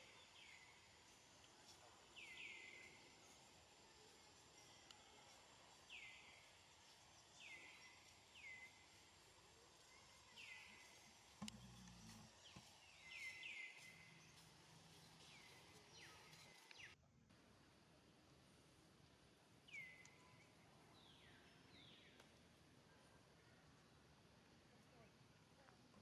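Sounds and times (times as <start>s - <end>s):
faint high whine: 0.0s - 18.1s.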